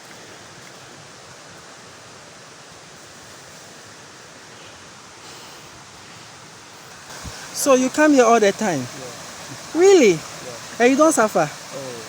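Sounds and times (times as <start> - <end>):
waterfall rushing: 5.0 - 12.0.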